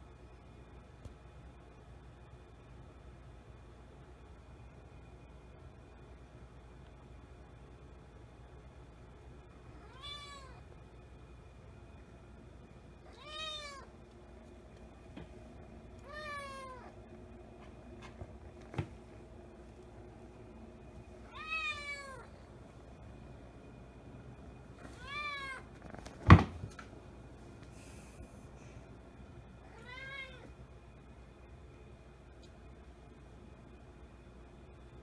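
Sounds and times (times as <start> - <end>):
kitten meowing: 9.8 - 10.6.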